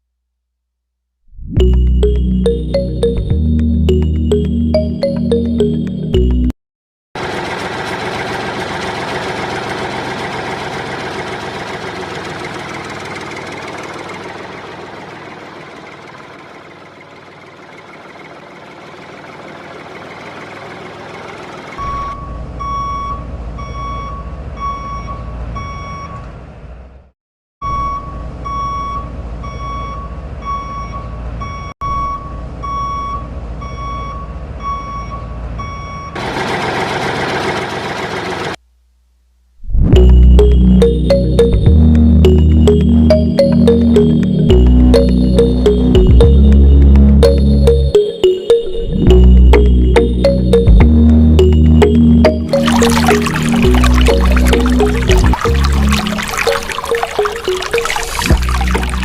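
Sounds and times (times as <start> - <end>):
vehicle reversing alarm beeping: 21.8 - 26.2, 27.6 - 36.2, 40.0 - 59.0.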